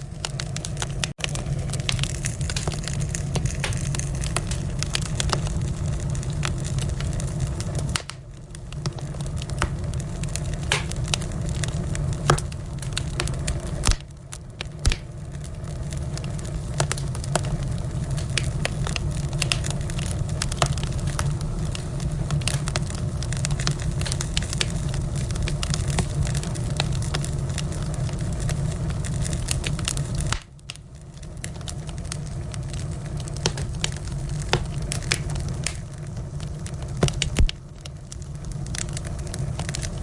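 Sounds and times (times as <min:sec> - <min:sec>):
fire crackling and popping: 0:00.0 - 0:40.0
low rumble of burning: 0:00.0 - 0:40.0.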